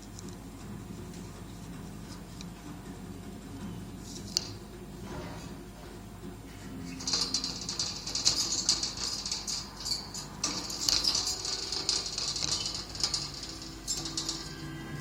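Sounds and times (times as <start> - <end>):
lovebirds chattering: 6.8 - 14.3.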